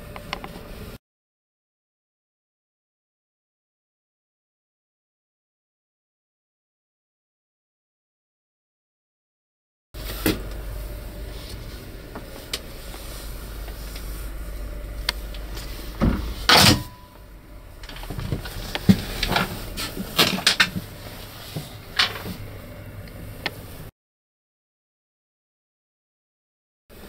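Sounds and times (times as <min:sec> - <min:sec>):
low steady hum: 0:10.0 - 0:23.9.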